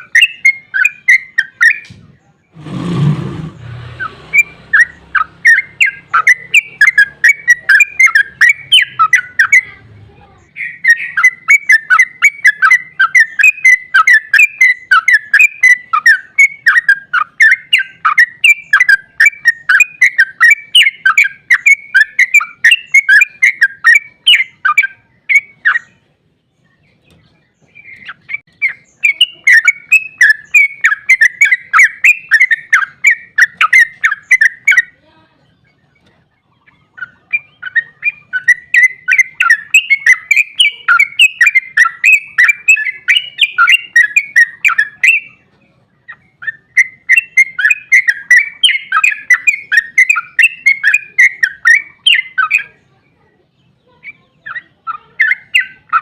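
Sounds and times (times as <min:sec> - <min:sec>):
bird song chirping: 0:00.0 - 0:56.0.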